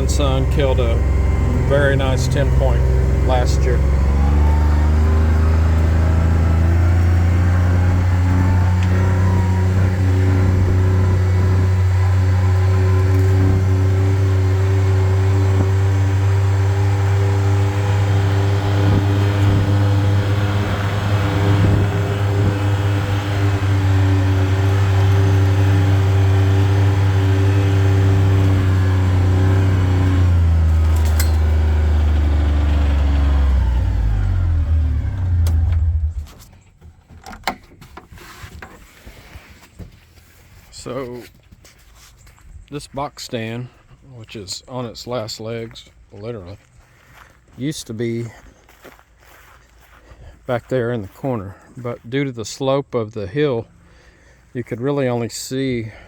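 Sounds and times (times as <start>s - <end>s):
vehicle engine running: 0.0s - 37.3s.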